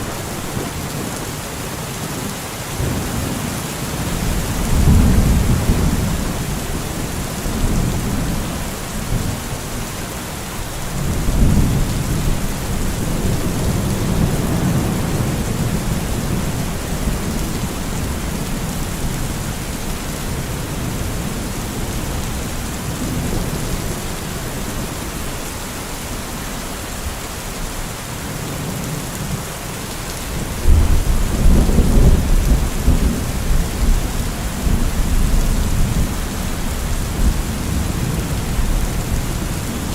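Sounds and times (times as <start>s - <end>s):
heavy rain: 0.0s - 39.9s
rolling thunder: 2.8s - 9.4s, 30.6s - 39.9s.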